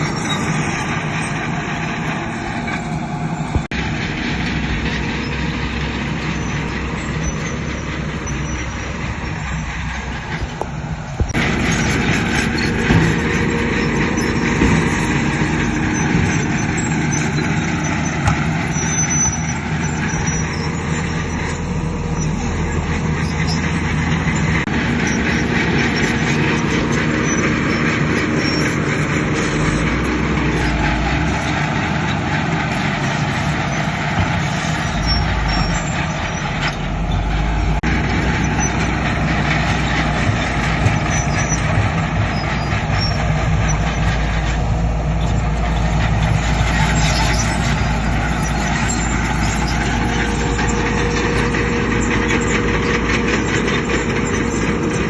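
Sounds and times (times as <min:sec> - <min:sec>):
heavy machinery diesel engines: 0:00.0 - 0:55.0.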